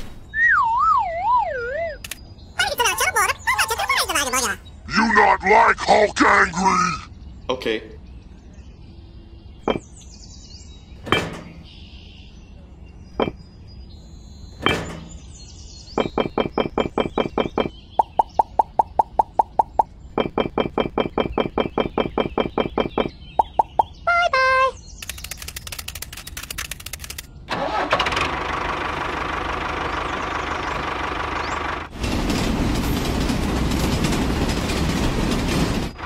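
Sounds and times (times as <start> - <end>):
rapid pitched clicks: 16.0 - 24.0, 25.0 - 27.3.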